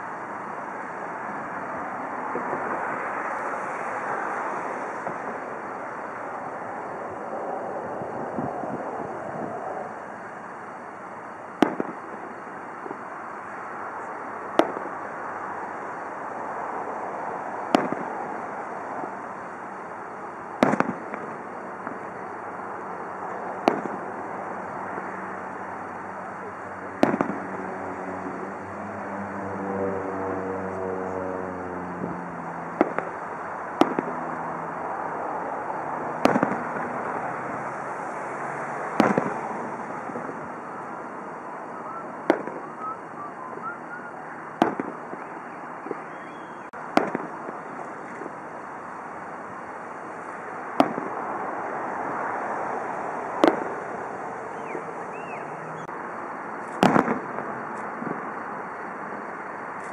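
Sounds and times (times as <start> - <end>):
steady background hiss: 0.0 - 29.0, 31.9 - 59.9
fireworks bursting: 4.9 - 6.1, 10.4 - 16.0, 17.7 - 27.7, 32.0 - 34.2, 35.6 - 51.3, 53.3 - 55.4, 56.6 - 58.7.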